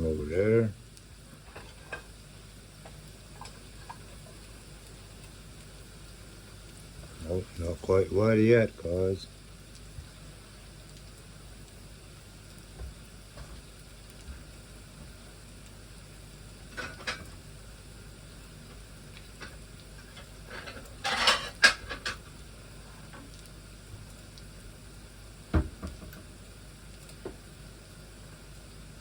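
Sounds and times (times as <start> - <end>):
food sizzling: 0.0 - 29.0
utensils clinking on cookware: 20.5 - 22.2
knock: 25.5 - 26.2.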